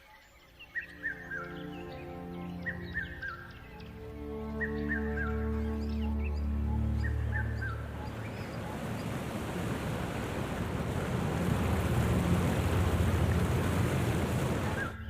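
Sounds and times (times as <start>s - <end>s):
bird chirps: 0.0s - 10.4s
rushing surf or wind: 7.4s - 15.0s.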